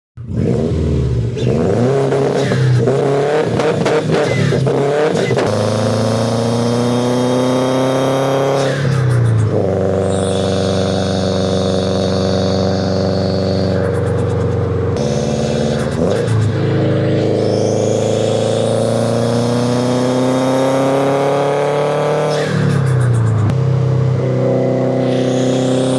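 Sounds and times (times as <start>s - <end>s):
car engine accelerating: 0.2s - 25.9s
exhaust crackles: 0.3s - 21.0s.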